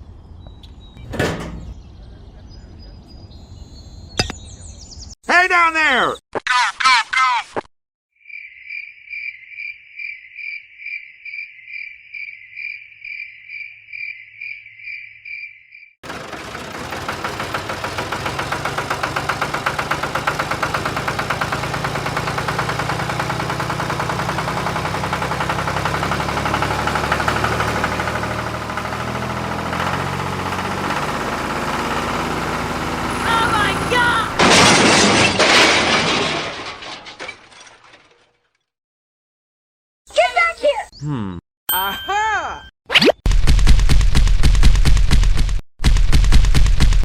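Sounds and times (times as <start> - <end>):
cricket chirping: 8.2 - 16.0
engine running with fast pulse: 16.0 - 34.4.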